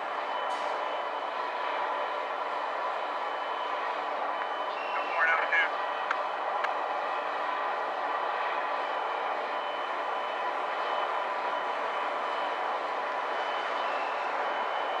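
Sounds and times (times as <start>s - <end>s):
diesel locomotive running: 0.0s - 15.0s.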